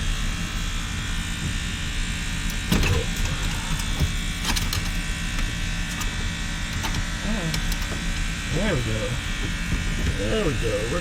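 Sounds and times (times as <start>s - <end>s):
steady buzzing hum: 0.1s - 11.0s
light clicks and knocks: 2.5s - 6.1s.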